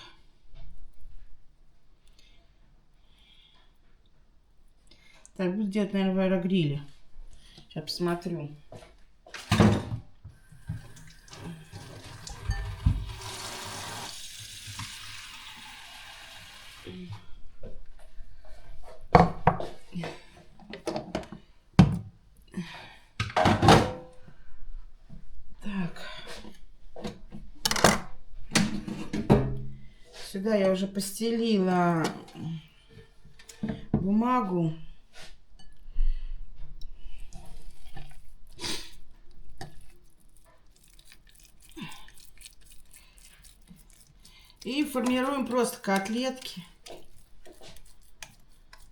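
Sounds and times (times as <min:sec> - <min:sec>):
squishy meat handling noises: 0:37.2 - 0:48.9.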